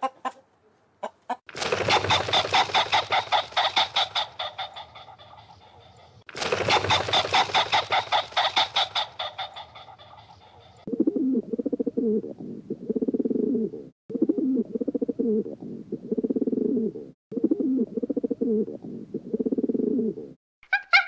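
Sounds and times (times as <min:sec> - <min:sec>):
bird cooing: 0:07.0 - 0:21.0.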